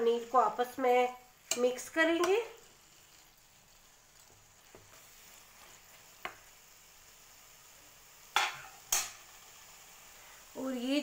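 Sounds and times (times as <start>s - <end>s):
food sizzling in a pan: 0.0s - 11.0s
spatula tapping pan: 1.4s - 2.6s, 6.2s - 6.5s.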